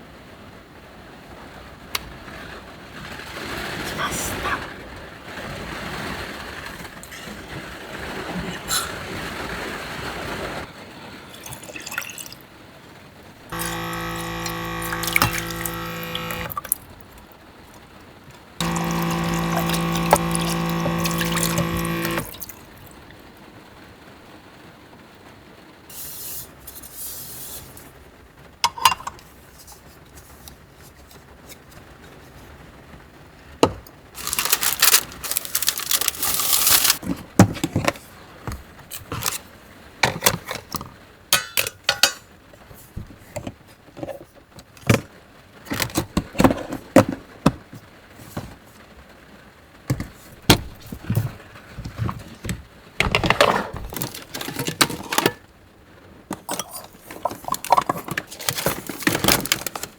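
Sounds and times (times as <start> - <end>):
rustling: 34.2 - 37.0.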